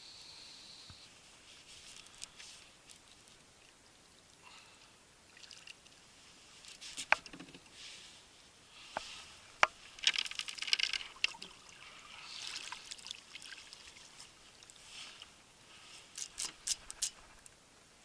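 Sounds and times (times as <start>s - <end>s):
water trickling and splashing: 1.6s - 7.3s, 9.2s - 17.2s.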